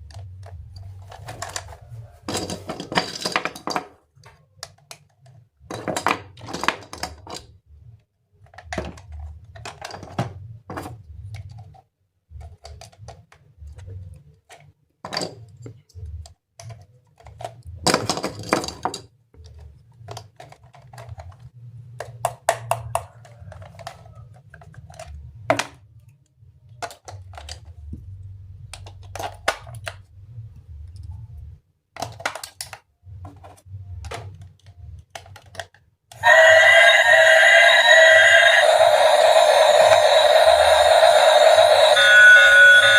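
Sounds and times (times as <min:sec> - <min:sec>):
plastic parts scraping: 0:00.0 - 0:07.6, 0:08.4 - 0:22.2, 0:22.9 - 0:28.0
plastic toy parts clicking: 0:02.3 - 0:07.6, 0:11.2 - 0:27.9, 0:28.5 - 0:31.2, 0:31.9 - 0:36.3.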